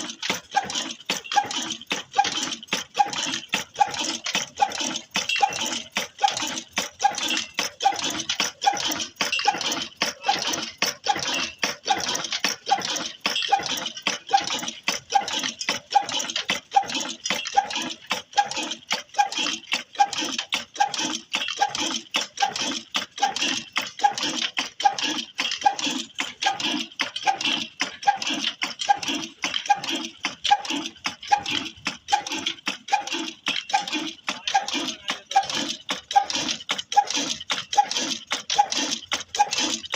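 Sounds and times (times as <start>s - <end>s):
metallic clatter: 0.0s - 20.6s
stationary engine running: 0.0s - 39.9s.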